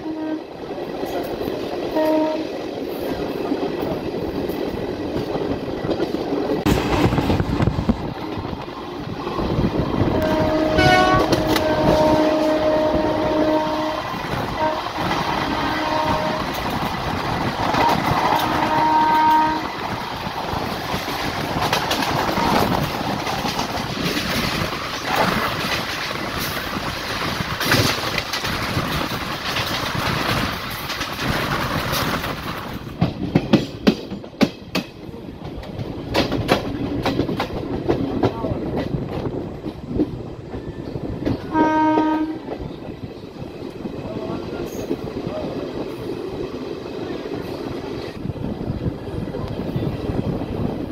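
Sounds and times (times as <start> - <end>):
train horn blasts: 0.0 - 0.6, 1.9 - 2.5, 10.1 - 16.7, 17.7 - 19.8, 41.4 - 42.6
train rumbling on track: 0.0 - 50.9
wheels clattering over rail joints: 16.2 - 41.6.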